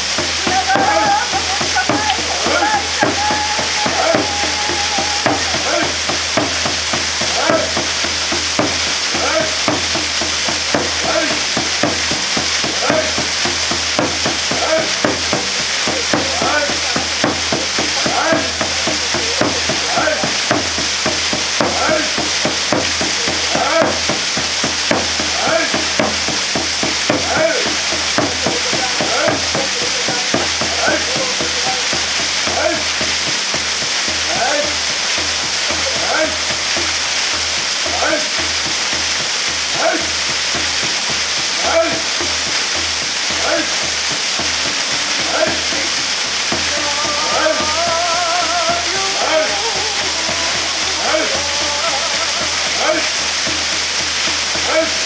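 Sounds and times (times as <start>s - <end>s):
water spattering and splashing: 0.0s - 55.0s
waterfall pouring: 0.0s - 55.0s.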